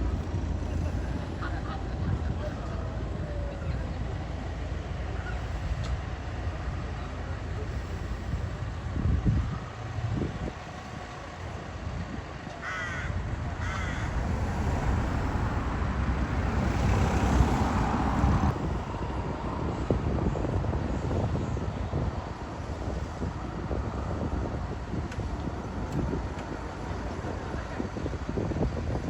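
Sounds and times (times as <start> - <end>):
vehicle engines rumbling: 0.0 - 29.0
crow cawing: 12.6 - 14.2
passing vehicle rushing: 13.4 - 19.8.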